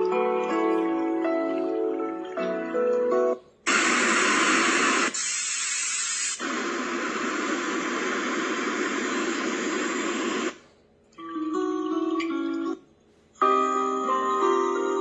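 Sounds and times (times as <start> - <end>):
white noise machine hiss: 3.2 - 11.0.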